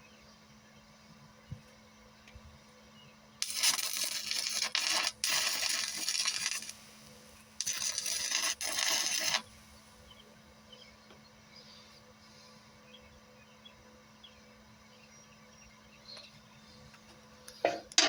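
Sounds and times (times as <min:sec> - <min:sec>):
welding arc crackling: 0:03.4 - 0:09.6.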